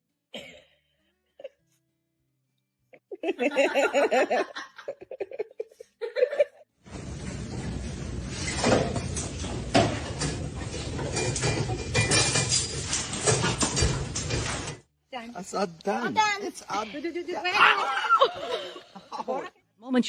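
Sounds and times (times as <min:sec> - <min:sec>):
person laughing: 0:03.0 - 0:06.6, 0:17.8 - 0:19.5.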